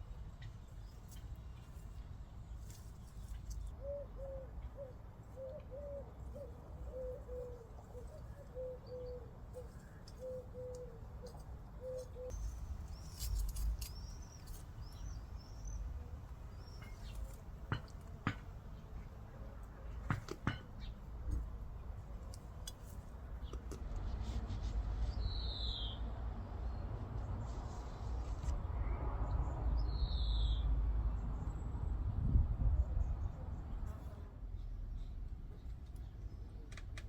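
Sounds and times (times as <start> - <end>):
birds calling: 3.2 - 15.9.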